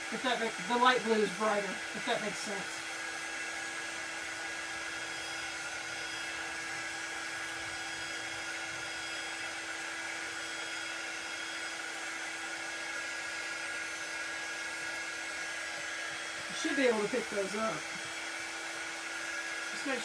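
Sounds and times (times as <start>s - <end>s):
hot-air dryer whirring: 0.0s - 20.0s.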